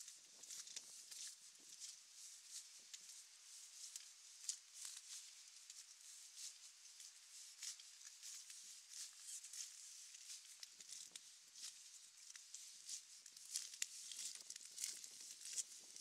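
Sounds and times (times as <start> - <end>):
faint rain pattering: 3.8 - 16.0.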